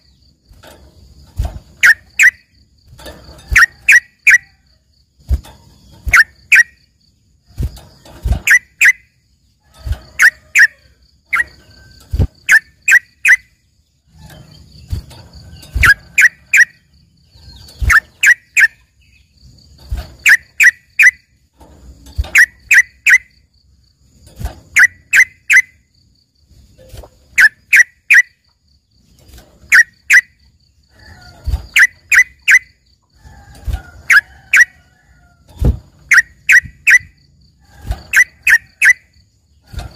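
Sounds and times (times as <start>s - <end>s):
bird singing sharp chirps: 1.8s - 2.6s, 8.2s - 9.2s, 14.2s - 19.4s, 36.0s - 37.2s.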